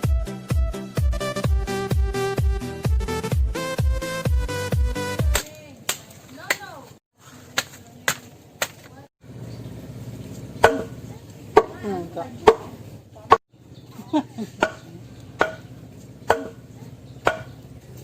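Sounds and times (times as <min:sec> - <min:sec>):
chopping strikes on bamboo: 0:05.3 - 0:06.8, 0:07.5 - 0:09.0, 0:10.6 - 0:11.0, 0:11.6 - 0:11.8, 0:12.4 - 0:12.7, 0:14.6 - 0:16.6, 0:17.2 - 0:17.6.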